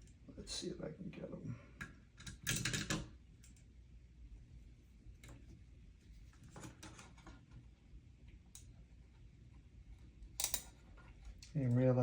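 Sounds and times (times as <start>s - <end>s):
tiny screws clicking and scraping: 10.3s - 11.9s.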